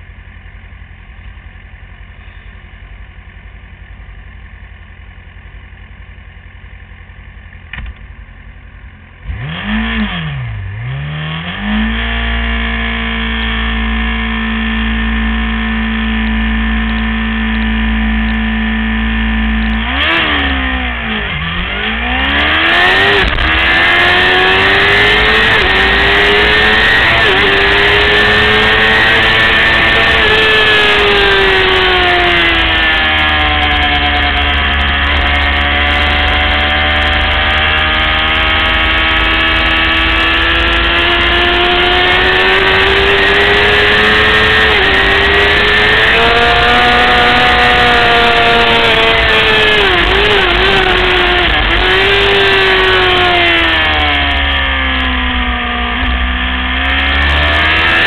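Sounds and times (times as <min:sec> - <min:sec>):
motorcycle engine revving: 0:07.7 - 0:58.0.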